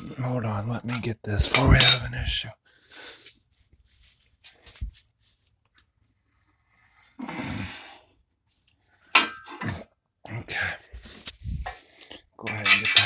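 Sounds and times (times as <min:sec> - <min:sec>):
sharp metallic clank: 0:01.4 - 0:02.1.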